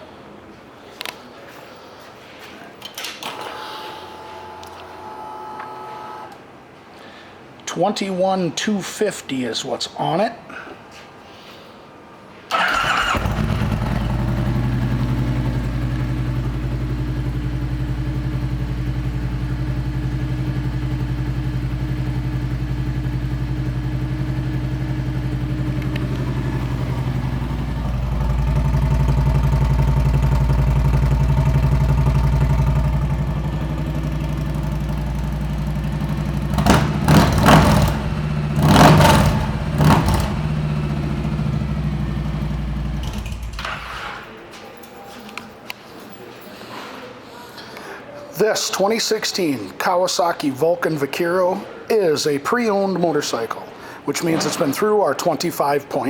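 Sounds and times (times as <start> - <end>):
motorcycle throttle blips: 12.5 - 43.9
motorcycle engine idling: 12.6 - 43.9.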